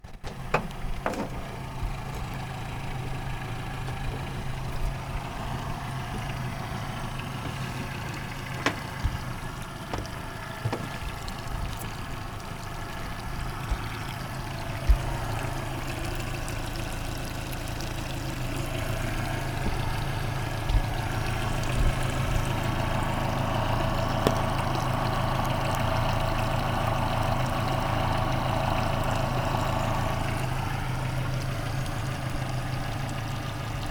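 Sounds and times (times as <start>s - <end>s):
sharp knocks: 0.0s - 11.9s
outboard motor idling: 0.0s - 33.9s.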